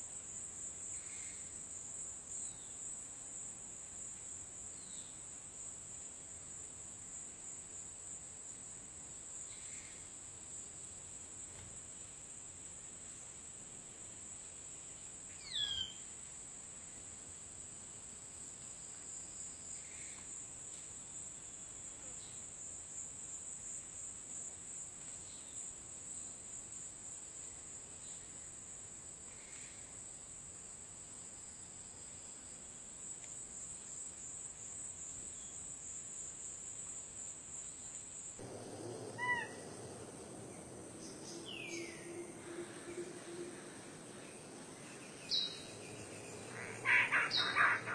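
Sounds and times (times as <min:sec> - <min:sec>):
high-pitched insect trill: 0:33.9 - 0:47.9
faint bird calls: 0:38.4 - 0:47.9
bird whistled calls falling in pitch: 0:39.0 - 0:42.1.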